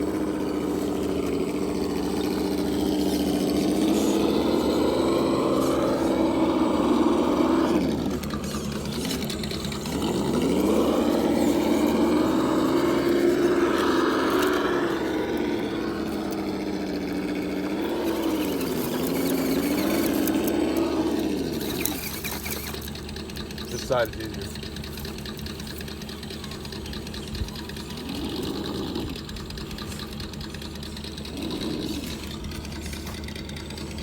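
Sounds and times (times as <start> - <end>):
simulated truck engine revving: 0.0 - 34.0.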